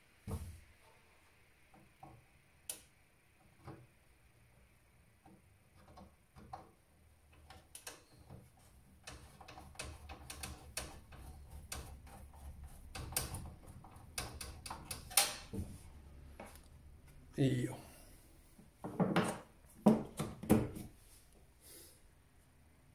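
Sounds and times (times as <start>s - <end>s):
hands clicking on computer hardware: 7.4s - 8.1s, 9.0s - 15.5s.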